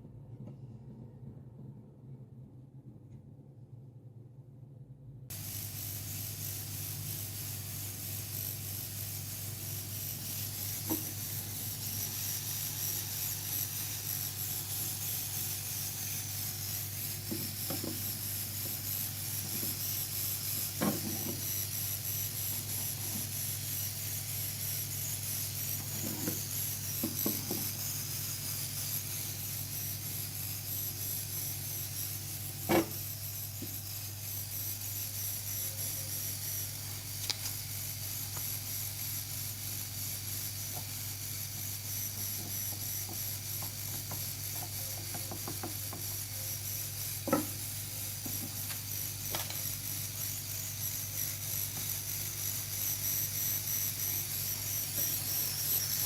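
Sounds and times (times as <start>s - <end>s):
steady low hum and hiss: 0.0s - 56.0s.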